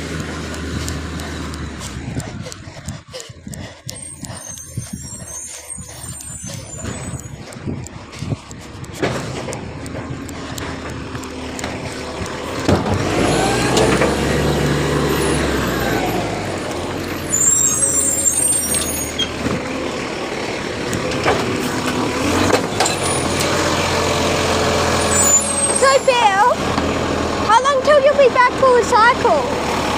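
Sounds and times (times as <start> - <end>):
diesel truck engine running: 0.0 - 29.9
high squeal: 3.9 - 7.4, 17.2 - 19.4, 25.0 - 26.2.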